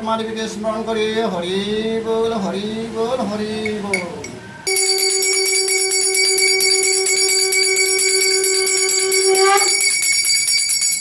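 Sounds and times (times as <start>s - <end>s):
bells jingling: 4.7s - 11.0s
conch shell blown: 4.7s - 11.0s.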